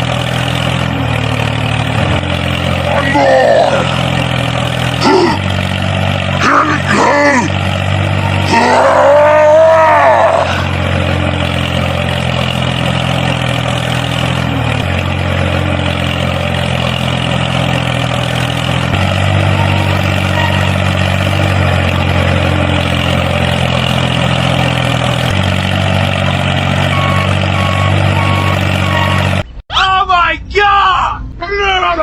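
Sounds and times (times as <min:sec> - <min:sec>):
tractor engine idling: 0:00.0 - 0:30.0
voice-like cry: 0:02.9 - 0:04.0, 0:05.0 - 0:05.5, 0:08.4 - 0:10.8.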